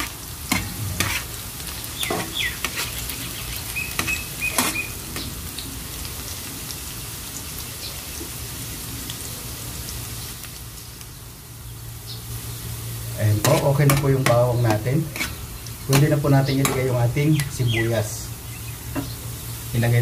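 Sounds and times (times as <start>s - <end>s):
utensil scraping a wok: 0.0s - 5.3s, 13.2s - 17.5s
garlic sizzling in oil: 0.0s - 20.0s.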